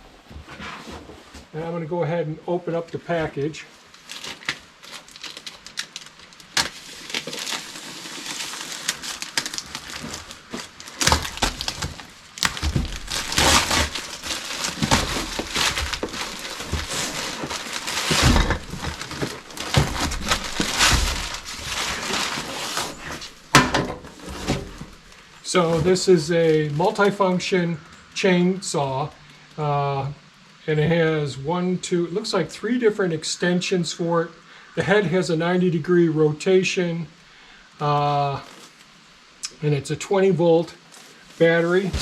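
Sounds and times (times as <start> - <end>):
package packing tearing and rustling: 3.7 - 27.2, 40.9 - 42.0.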